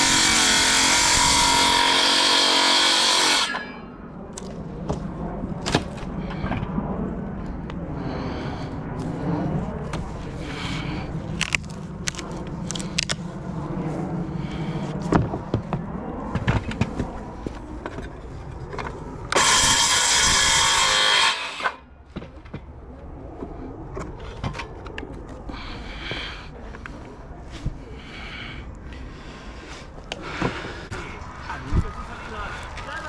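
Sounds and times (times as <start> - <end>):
loud steady rushing noise: 0.0 - 22.0, 30.3 - 33.0.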